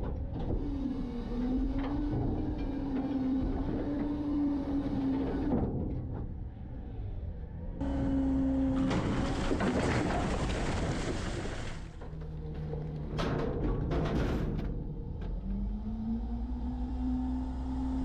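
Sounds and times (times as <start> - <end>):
garbage truck compacting: 7.8 - 15.8.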